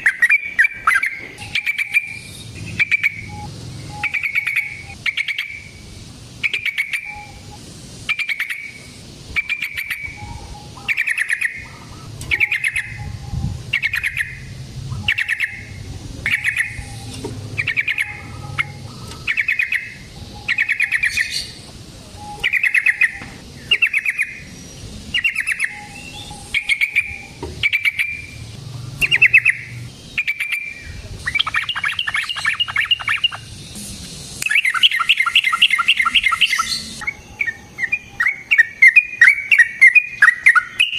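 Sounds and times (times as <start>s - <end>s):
bird singing bubbly phrases: 0.0s - 33.7s, 34.4s - 40.9s.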